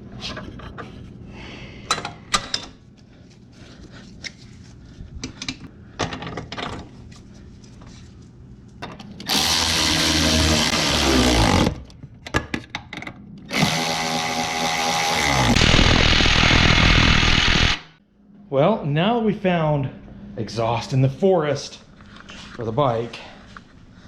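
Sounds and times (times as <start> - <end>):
power tool running: 9.2 - 11.8, 13.5 - 18.0.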